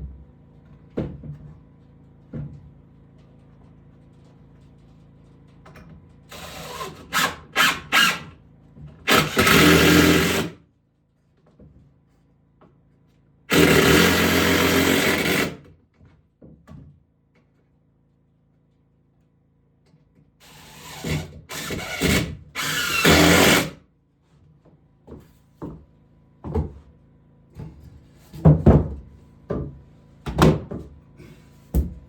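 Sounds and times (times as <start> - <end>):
power tool running: 6.3 - 8.4, 9.1 - 10.6, 13.5 - 15.7, 20.4 - 23.8.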